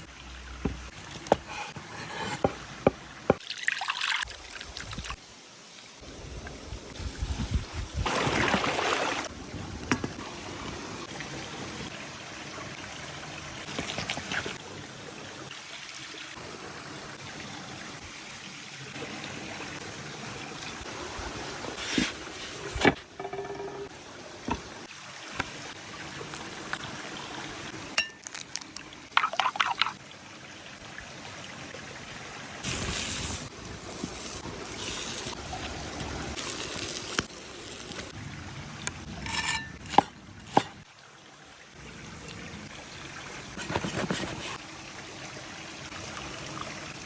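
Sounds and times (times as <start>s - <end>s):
liquid pouring and trickling: 0.0s - 5.2s, 22.5s - 31.7s, 32.4s - 47.0s
steady watery hiss: 13.4s - 28.0s, 32.2s - 38.2s.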